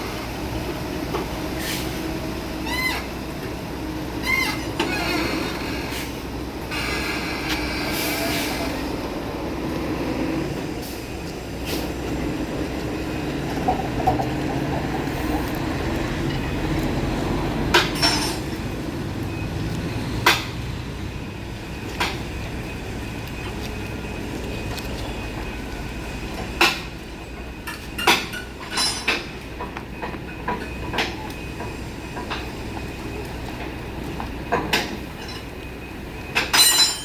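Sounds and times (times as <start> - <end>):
low mechanical rumble: 0.0 - 36.4
sharp metallic clinks and knocks: 17.7 - 18.6, 27.7 - 29.3, 36.4 - 37.0.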